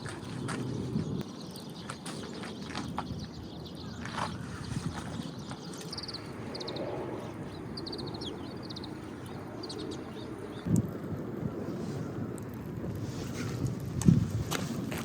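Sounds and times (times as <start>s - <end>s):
small bird chirping: 0.6s - 10.7s.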